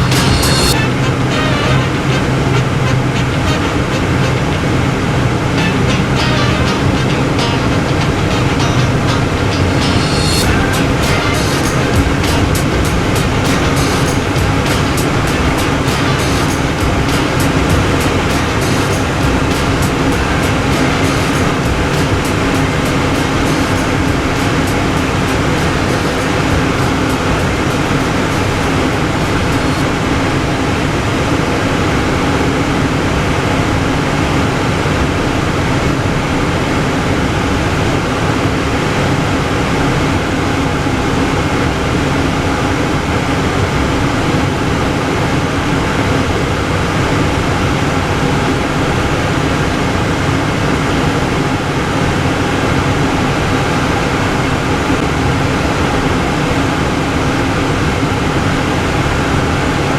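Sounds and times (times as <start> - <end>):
rushing air hiss: 0.0 - 0.8, 9.7 - 30.0
jet cockpit engine hum: 0.0 - 30.0.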